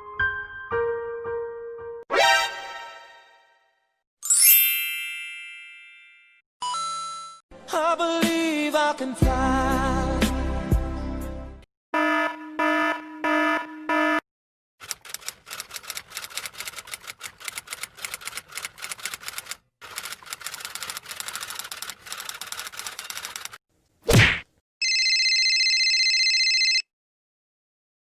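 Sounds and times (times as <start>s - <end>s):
rapid clattering typing keystrokes: 14.8s - 23.6s.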